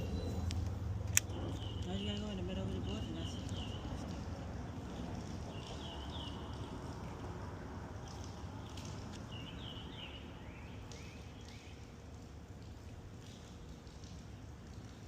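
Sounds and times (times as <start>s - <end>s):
small birds chirping: 1.3s - 6.9s, 8.0s - 11.9s.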